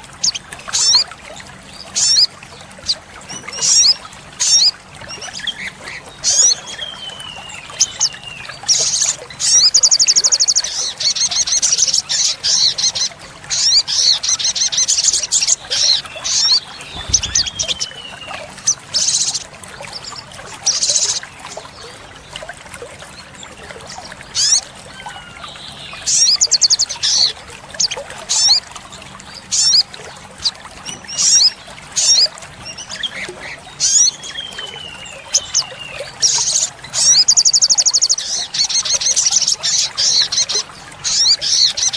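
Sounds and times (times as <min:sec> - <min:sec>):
sunbird chirping and trilling: 0:03.6 - 0:19.4, 0:24.4 - 0:27.3, 0:33.8 - 0:41.9.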